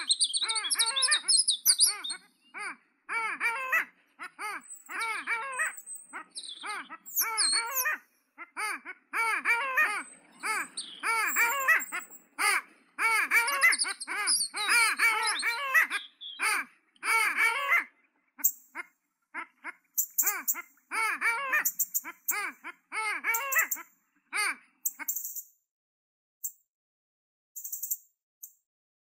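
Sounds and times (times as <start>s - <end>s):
small birds chirping and trilling: 0.0s - 18.8s, 19.4s - 25.5s
bird call bursts: 3.5s - 8.0s, 9.5s - 16.7s.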